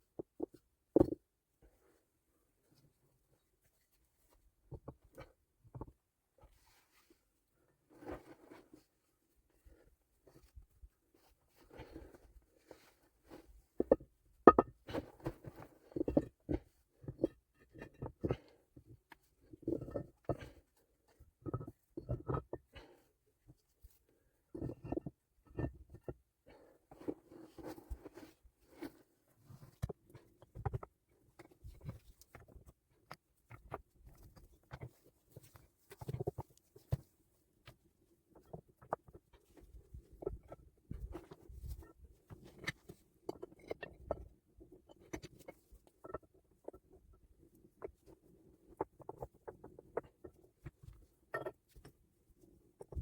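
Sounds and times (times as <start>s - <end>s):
hard objects knocking: 13.8s - 14.8s.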